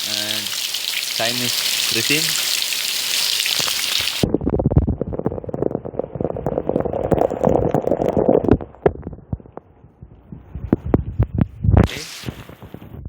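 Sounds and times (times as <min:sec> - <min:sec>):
heavy rain hissing: 0:00.0 - 0:04.2
muffled rumble: 0:04.2 - 0:11.9
microphone handling noise: 0:04.2 - 0:13.0.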